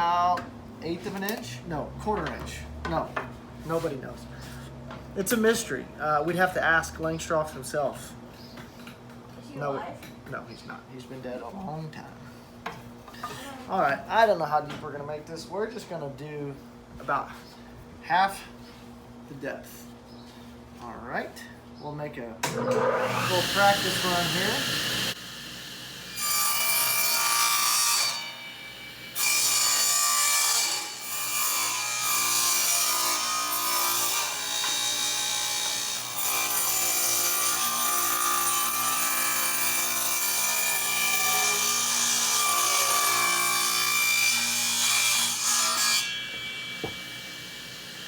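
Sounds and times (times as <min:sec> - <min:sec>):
power saw cutting wood: 0:22.5 - 0:48.0.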